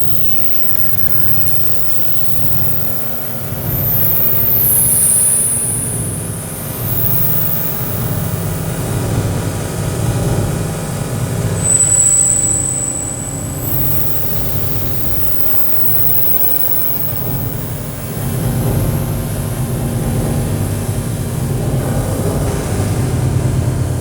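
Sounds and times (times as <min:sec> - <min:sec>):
high hiss: 0:00.0 - 0:09.0, 0:13.6 - 0:19.1
thin high whistle: 0:00.0 - 0:09.0, 0:11.5 - 0:19.0
low synthesizer drone: 0:00.0 - 0:09.4, 0:13.5 - 0:22.4.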